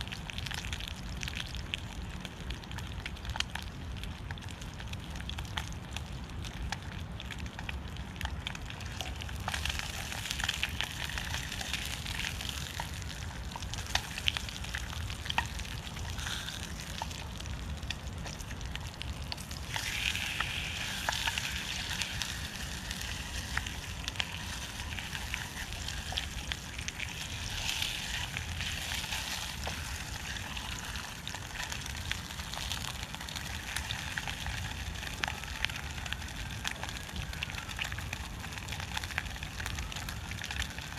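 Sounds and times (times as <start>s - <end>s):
food sizzling in a pan: 19.2s - 36.0s.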